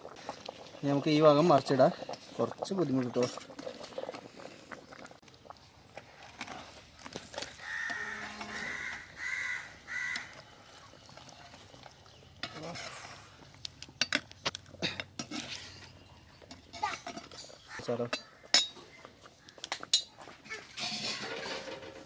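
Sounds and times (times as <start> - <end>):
bird cawing harshly: 7.6 - 10.3
metal cookware clinking: 14.0 - 18.9, 19.7 - 22.0.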